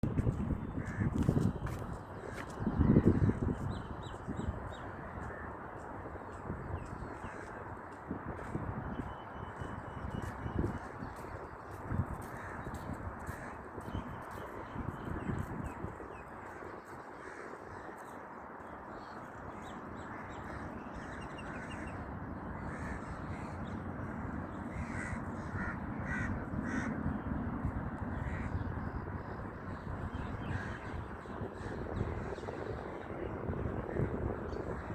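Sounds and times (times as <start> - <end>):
harsh caw-like bird calls: 0.8 - 3.5, 4.9 - 5.6, 6.9 - 7.8, 12.2 - 13.7, 16.4 - 18.3, 20.0 - 22.0, 22.6 - 27.3, 28.1 - 32.8.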